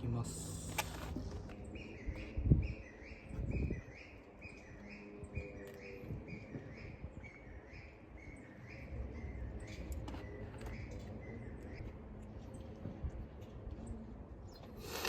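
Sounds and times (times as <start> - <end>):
bird chirping: 0.2 - 11.9.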